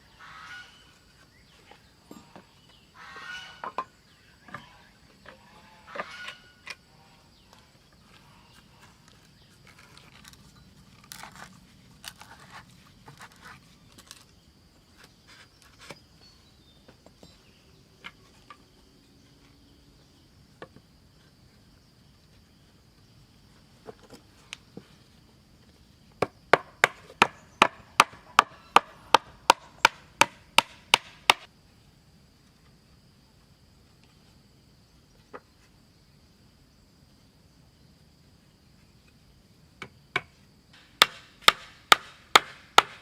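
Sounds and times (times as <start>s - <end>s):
wood being handled: 8.0s - 16.0s
hand tool chopping wood: 26.2s - 31.5s, 40.2s - 43.0s.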